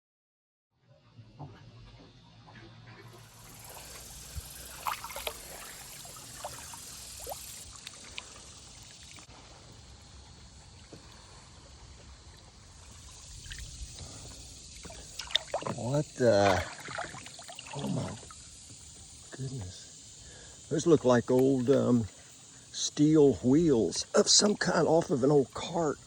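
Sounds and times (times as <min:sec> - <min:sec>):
water trickling and sloshing: 0:01.4 - 0:22.8
light knocks and splashes: 0:03.2 - 0:09.3, 0:14.8 - 0:18.4.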